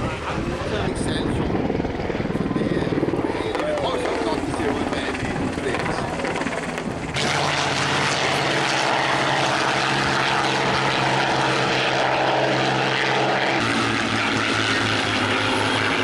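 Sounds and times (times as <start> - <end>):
propeller aircraft engine droning: 0.0 - 16.0.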